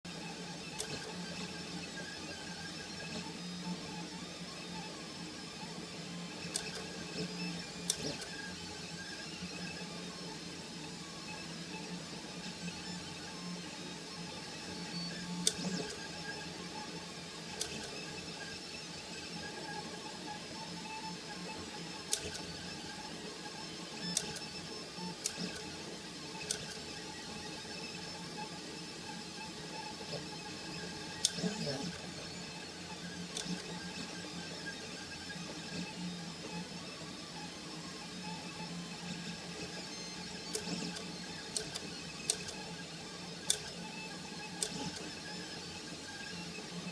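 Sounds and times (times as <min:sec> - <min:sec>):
printer motors humming and whining: 0:00.1 - 0:46.9
sharp clicks: 0:06.5 - 0:06.9, 0:07.9 - 0:08.4, 0:15.4 - 0:16.0, 0:17.6 - 0:18.0, 0:22.1 - 0:22.5, 0:24.0 - 0:24.5, 0:25.2 - 0:25.7, 0:26.4 - 0:26.8, 0:33.3 - 0:33.7, 0:40.5 - 0:42.6, 0:43.4 - 0:43.8, 0:44.6 - 0:45.1.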